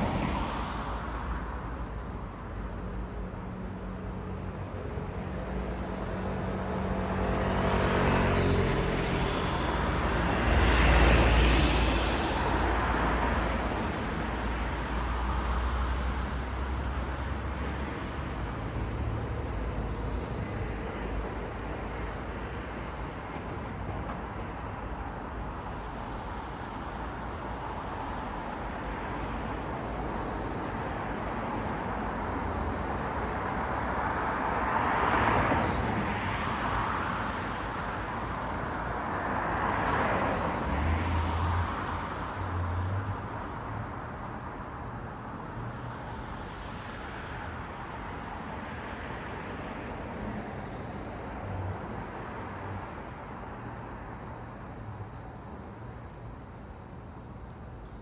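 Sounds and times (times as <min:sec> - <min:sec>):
cars passing: 0:05.5 - 0:25.5, 0:30.3 - 0:58.0
traffic rumble: 0:39.0 - 0:58.0.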